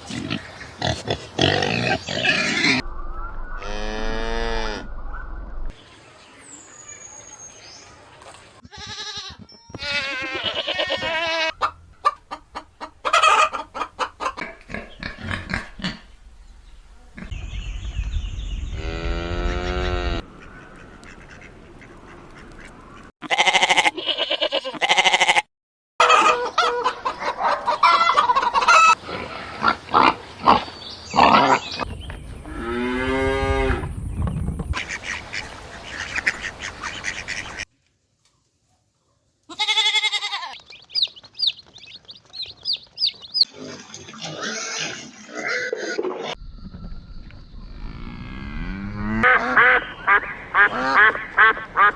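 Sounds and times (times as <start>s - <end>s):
geese or ducks honking: 26.0s - 29.0s, 49.0s - 51.9s
livestock calls: 39.5s - 41.6s, 49.2s - 51.9s.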